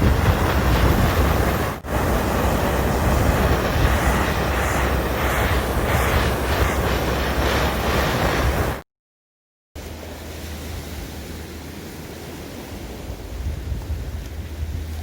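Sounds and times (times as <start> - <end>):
seaside wind: 0.0 - 8.8, 9.8 - 15.0
surf: 0.0 - 8.8
wind buffeting microphone: 0.0 - 8.8, 12.3 - 15.0.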